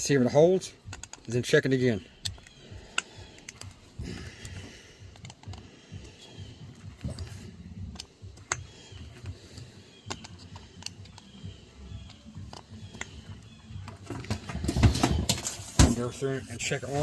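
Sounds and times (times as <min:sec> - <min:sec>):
hand tools clicking on metal parts: 0:00.7 - 0:14.2.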